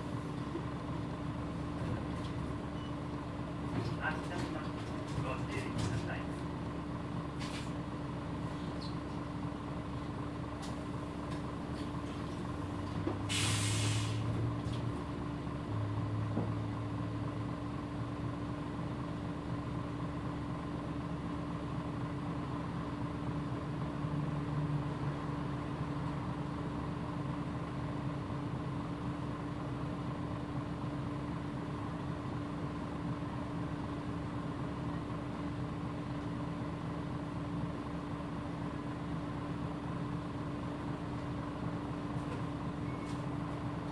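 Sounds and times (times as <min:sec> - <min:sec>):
bus engine drone: 0:00.0 - 0:43.9
air release hiss: 0:13.3 - 0:14.2.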